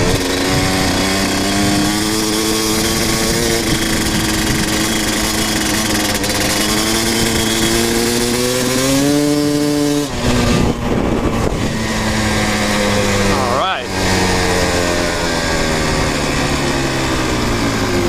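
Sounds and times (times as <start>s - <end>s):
dirt bike engine running hard: 0.0s - 18.0s.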